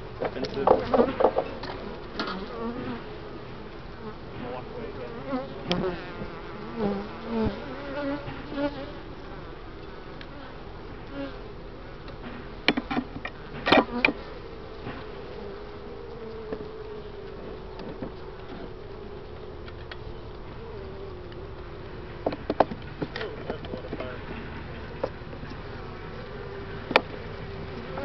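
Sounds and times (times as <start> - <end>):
bee humming close: 0.0 - 28.0
honeybees buzzing: 0.0 - 28.0.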